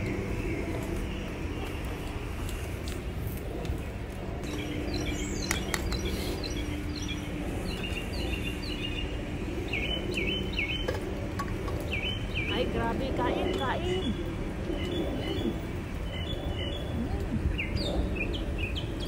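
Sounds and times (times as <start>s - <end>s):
low outdoor background noise: 0.0s - 19.0s
small birds chirping: 3.8s - 19.0s.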